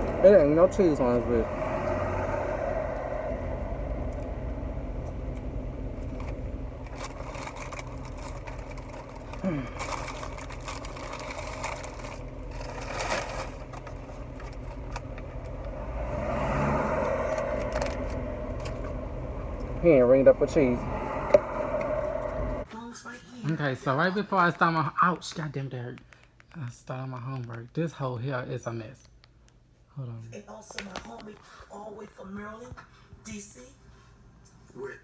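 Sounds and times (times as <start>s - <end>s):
car engine and road hum: 0.0s - 22.7s
clicks and rustles: 6.1s - 15.6s.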